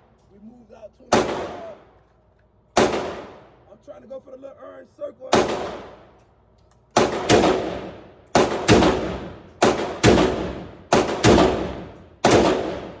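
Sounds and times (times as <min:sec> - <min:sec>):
rifle shots ringing out: 0:01.1 - 0:01.8, 0:02.8 - 0:03.5, 0:05.3 - 0:06.2, 0:06.9 - 0:13.0.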